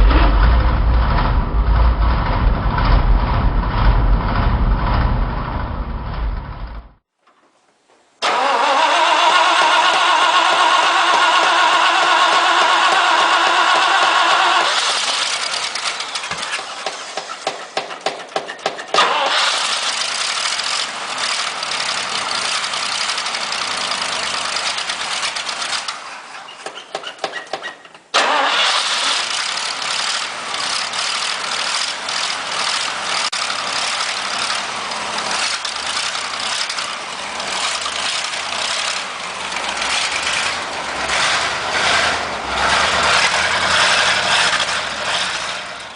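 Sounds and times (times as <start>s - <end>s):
truck engine running: 0.0s - 7.0s, 8.3s - 18.1s, 19.0s - 25.9s, 29.2s - 45.9s
starter motor cranking: 8.2s - 17.8s, 28.2s - 45.4s.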